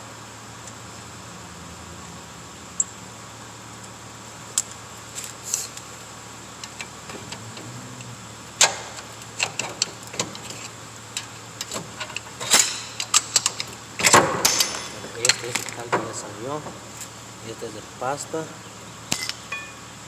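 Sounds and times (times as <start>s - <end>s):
metallic clicks and clinks: 6.6s - 17.2s.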